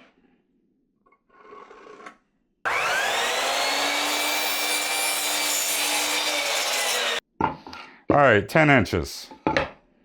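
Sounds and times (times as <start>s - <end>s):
electric power saw cutting wood: 2.7s - 7.2s.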